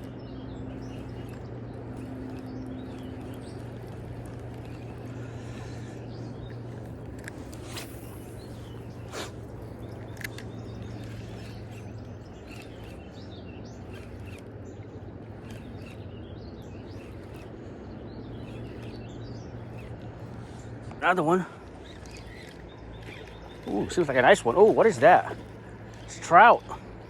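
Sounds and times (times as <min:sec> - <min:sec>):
small birds chirping: 0:00.0 - 0:27.0
sharp clicks: 0:00.8 - 0:17.6, 0:21.6 - 0:27.0.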